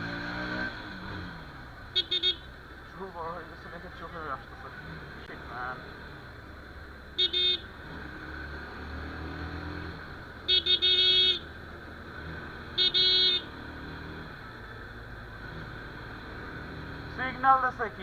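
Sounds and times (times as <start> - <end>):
traffic and engine noise: 0.0 - 18.0
vehicle horn tooting: 1.9 - 2.6, 7.2 - 7.8, 10.4 - 11.5, 12.7 - 13.6.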